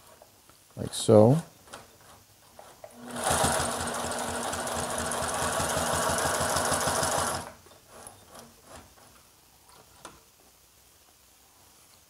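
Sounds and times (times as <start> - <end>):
sewing machine stitching leather: 1.7 - 9.1.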